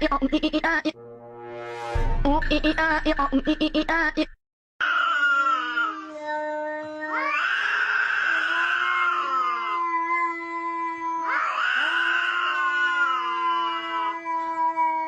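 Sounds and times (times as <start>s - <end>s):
held musical tone: 0.0s - 4.2s.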